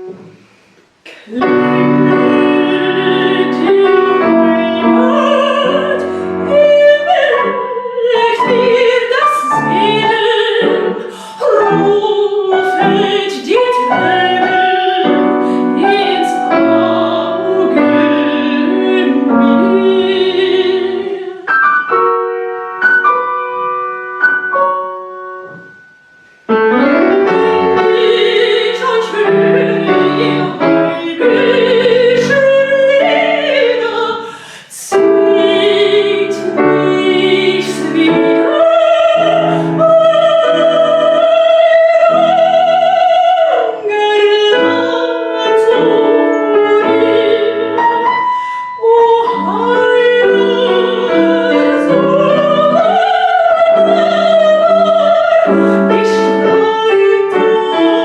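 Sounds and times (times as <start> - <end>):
piano accompaniment: 0.0 - 58.0
soprano singing with vibrato: 1.1 - 23.8, 26.5 - 58.0.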